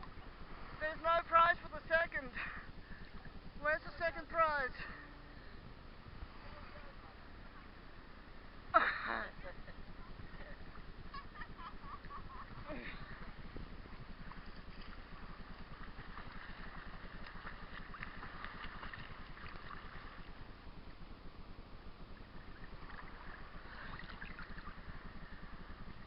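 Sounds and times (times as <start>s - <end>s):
low rumble: 0.0s - 26.0s
steady crackle: 0.0s - 26.0s
ocean water washing and fizzing: 11.8s - 20.5s, 22.3s - 26.0s.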